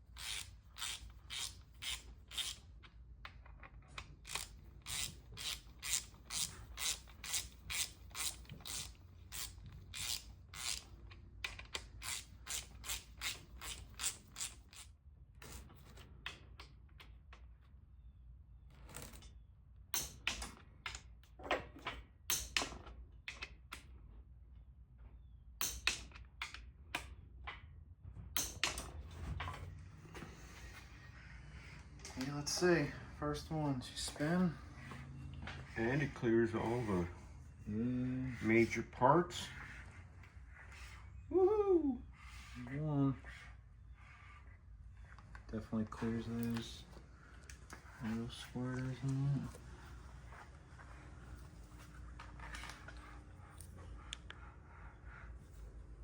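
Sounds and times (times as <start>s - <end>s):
ratchet wrench clicking: 0.2s - 2.7s, 4.2s - 11.0s, 11.7s - 14.9s.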